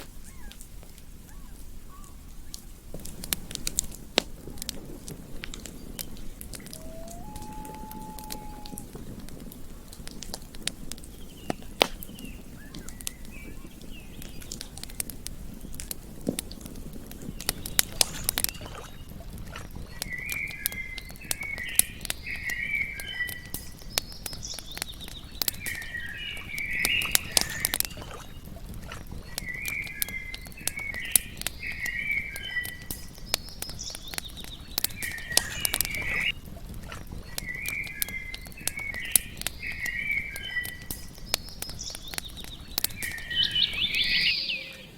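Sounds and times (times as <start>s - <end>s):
campfire crackling and popping: 0.0s - 44.9s
short chirping calls: 0.1s - 0.6s, 5.8s - 8.9s, 11.2s - 14.5s, 29.4s - 36.3s, 37.3s - 44.9s
low rumble: 3.1s - 22.1s.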